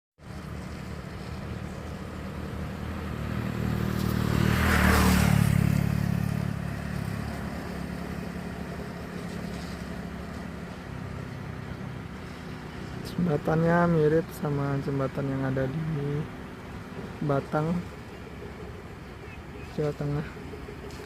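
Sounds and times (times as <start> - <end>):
traffic engine hum: 0.2 - 21.0
vehicle passing close by: 0.2 - 21.0.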